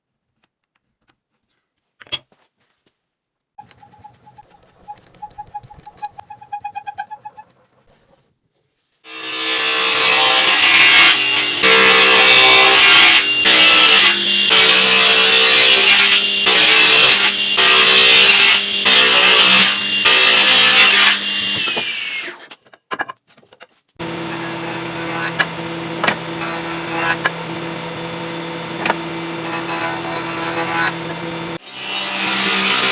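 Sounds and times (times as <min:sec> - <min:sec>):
power saw cutting wood: 0:09.1 - 0:22.5, 0:24.0 - 0:32.9.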